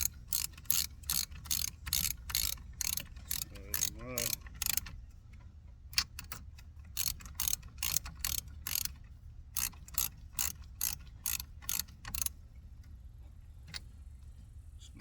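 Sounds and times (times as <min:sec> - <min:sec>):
ratchet wrench clicking: 0:00.0 - 0:05.0, 0:05.9 - 0:09.0, 0:09.6 - 0:12.4.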